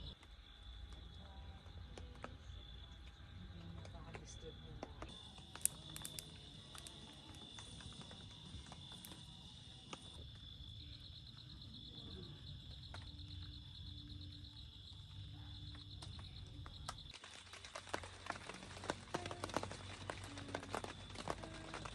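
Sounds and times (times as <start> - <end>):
pulsing insect chirp: 0.0 - 17.1
high-pitched insect trill: 5.1 - 17.1.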